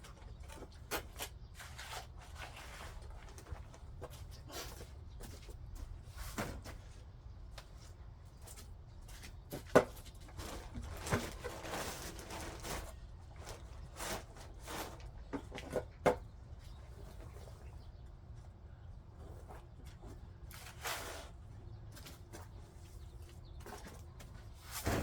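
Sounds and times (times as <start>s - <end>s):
hand tool scraping soil: 0.7s - 3.2s, 10.4s - 15.2s, 19.9s - 21.4s, 24.6s - 25.0s.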